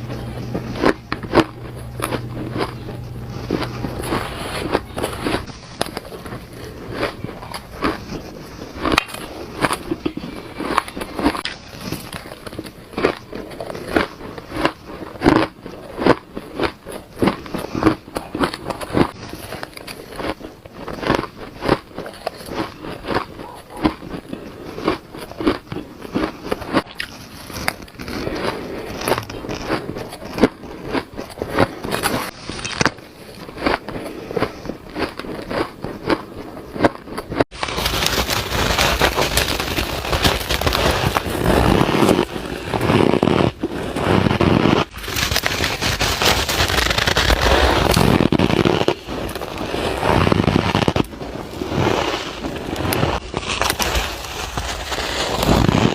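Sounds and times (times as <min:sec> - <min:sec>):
shaved ice crunching in mouth: 0:00.0 - 0:55.9.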